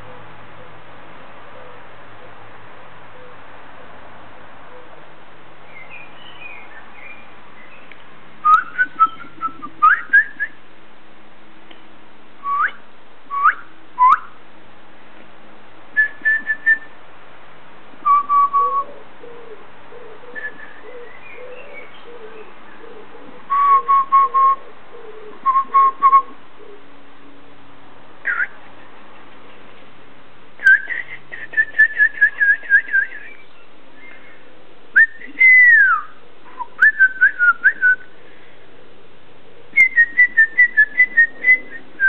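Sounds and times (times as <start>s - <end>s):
steady background hiss: 0.0s - 42.0s
birds singing whistled notes: 5.7s - 10.6s, 12.4s - 14.4s, 18.0s - 19.0s, 19.9s - 26.4s, 28.2s - 28.6s, 30.6s - 34.4s, 35.0s - 38.1s, 39.8s - 42.0s.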